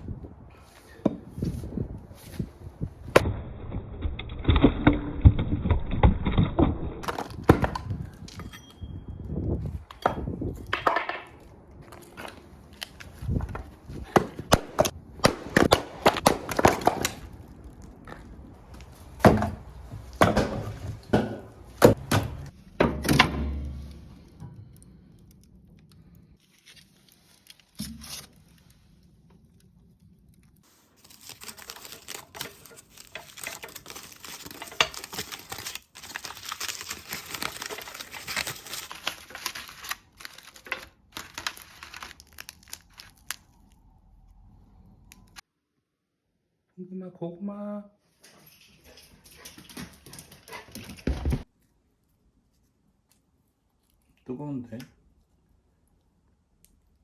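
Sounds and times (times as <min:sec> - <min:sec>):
wood cracking apart: 0:03.0 - 0:08.4, 0:09.8 - 0:43.9
axe chopping wood: 0:07.0 - 0:08.0, 0:14.0 - 0:17.3, 0:19.1 - 0:23.9.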